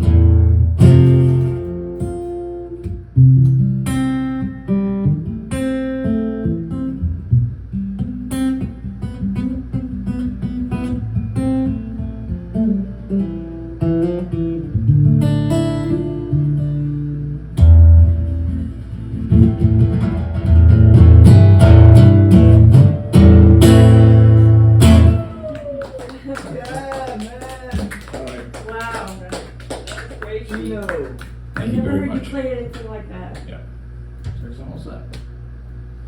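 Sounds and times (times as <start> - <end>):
strummed guitar chords: 0.0 - 25.4
acoustic guitar picking notes: 0.0 - 25.5.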